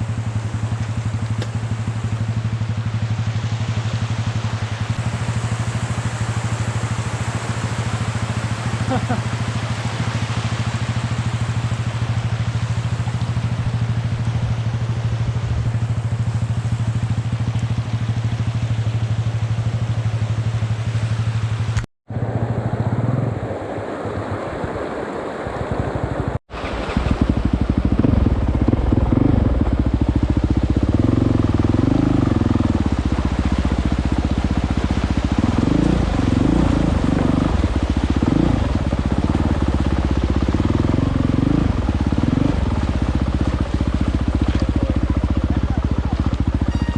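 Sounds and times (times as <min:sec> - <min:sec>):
motorcycle engine revving: 0:00.0 - 0:23.7, 0:26.6 - 0:46.9.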